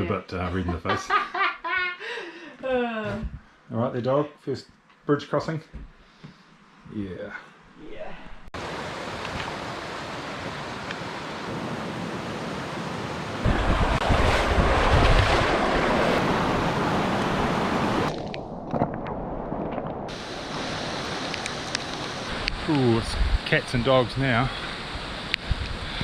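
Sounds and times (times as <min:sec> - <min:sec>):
wind buffeting microphone: 0:13.4 - 0:18.1.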